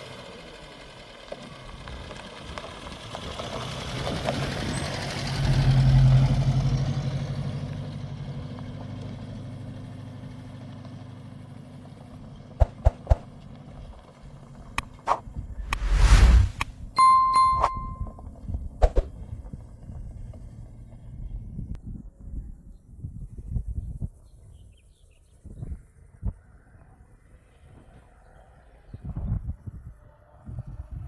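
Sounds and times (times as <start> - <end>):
vehicle engine passing by: 14.8 - 16.7.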